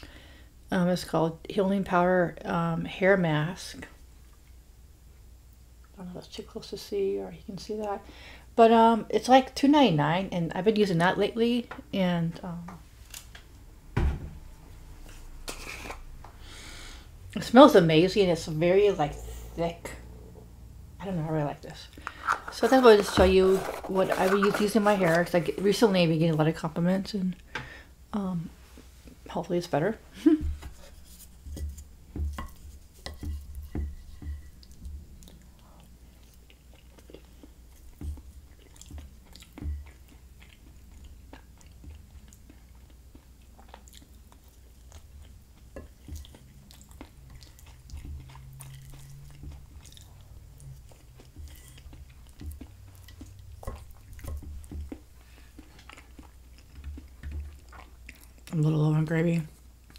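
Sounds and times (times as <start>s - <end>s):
person chewing: 18.6s - 20.8s, 30.8s - 58.5s.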